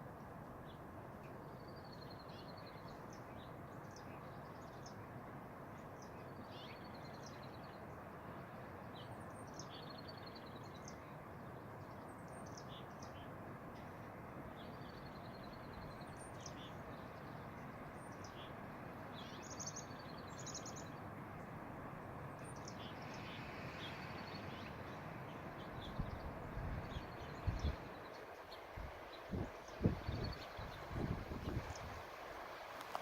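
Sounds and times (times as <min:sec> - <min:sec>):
steady wind: 0:00.0 - 0:33.0
small birds chirping: 0:22.4 - 0:32.1
wind gusts thumping microphone: 0:25.9 - 0:27.9, 0:28.7 - 0:33.0.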